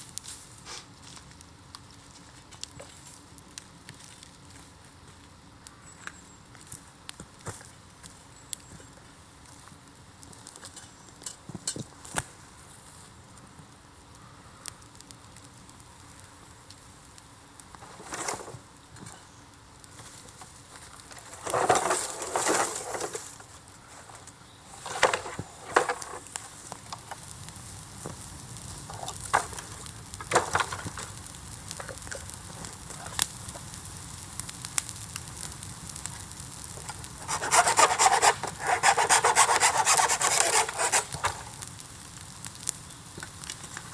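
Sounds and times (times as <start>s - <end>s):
bonfire crackling and popping: 0.0s - 43.9s
dense steady rasping: 37.1s - 41.8s.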